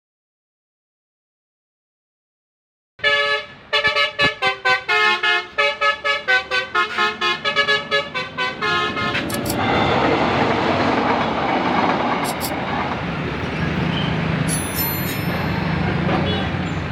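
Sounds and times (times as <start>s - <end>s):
vehicle horn playing a tune: 3.0s - 10.2s
steady rushing noise: 8.9s - 14.6s.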